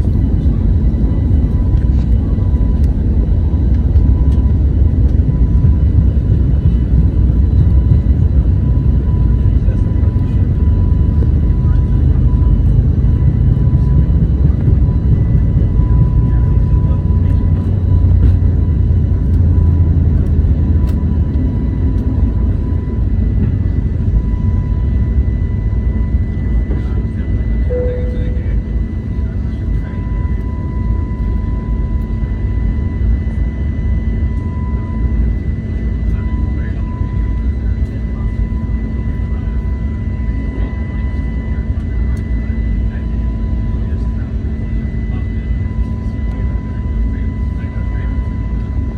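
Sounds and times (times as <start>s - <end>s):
aircraft cabin engine rumble: 0.0s - 48.9s
faint high steady tones: 27.6s - 31.9s.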